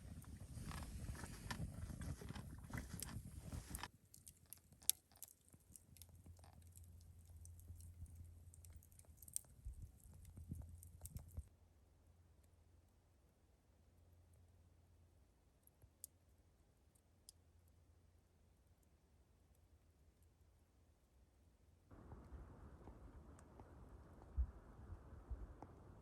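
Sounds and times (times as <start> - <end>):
crunching: 0.0 - 11.5.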